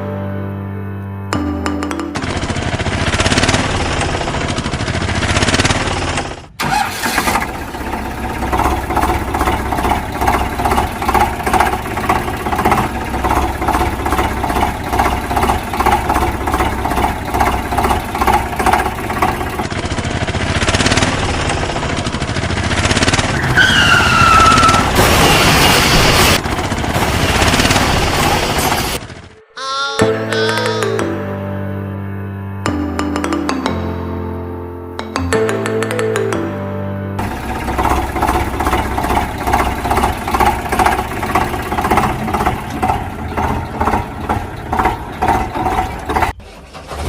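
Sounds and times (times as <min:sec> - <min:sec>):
tractor engine chugging: 0:01.9 - 0:29.4, 0:37.2 - 0:47.0.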